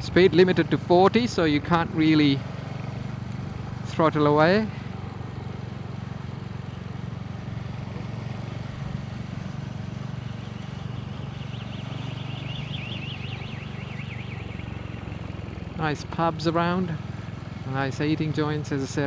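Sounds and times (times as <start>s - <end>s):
motorcycle engine running: 0.0s - 19.0s
high warbling alarm tone: 11.5s - 14.8s.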